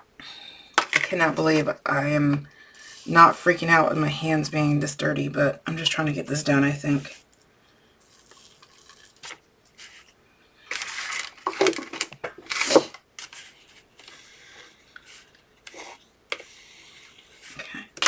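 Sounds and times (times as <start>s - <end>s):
utensil scraping a container: 8.0s - 10.1s.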